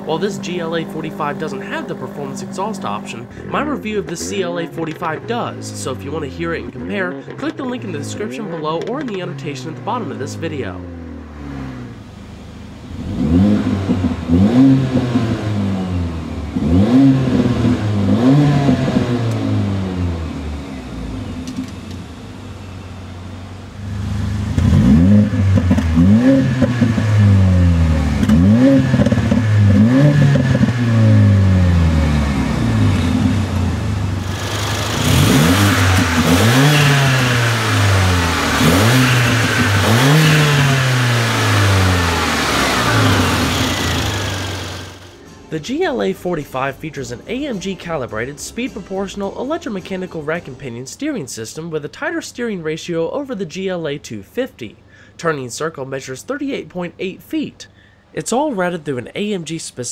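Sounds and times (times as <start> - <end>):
car engine revving: 0.0 - 45.3
car engine idling: 0.0 - 45.5.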